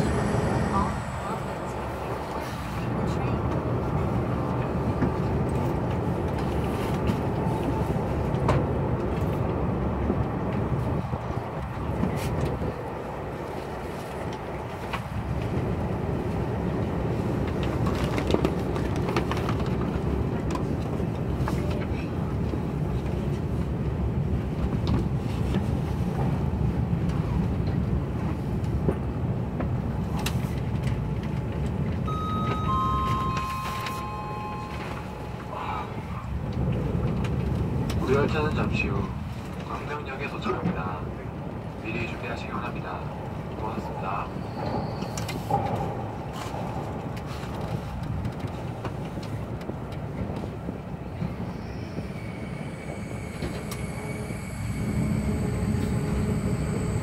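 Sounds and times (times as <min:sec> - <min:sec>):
train running noise inside car: 0:00.0 - 0:57.0
chime tones: 0:32.1 - 0:35.7.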